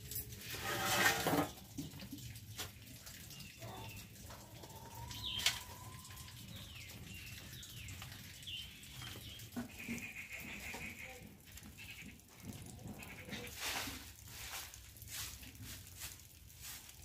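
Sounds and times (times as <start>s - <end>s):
small birds chirping: 2.2s - 13.6s.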